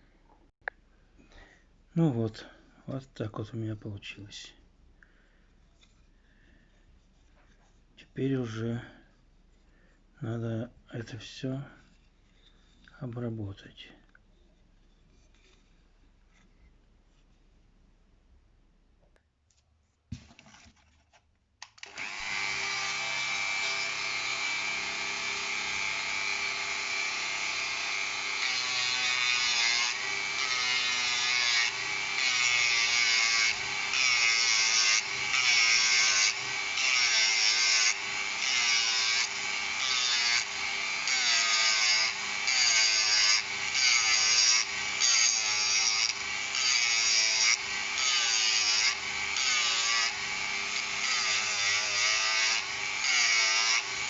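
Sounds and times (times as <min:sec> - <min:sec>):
rotary tool grinding plastic: 0:14.1 - 0:16.8, 0:20.2 - 0:54.0
rotary tool whining: 0:21.6 - 0:54.0.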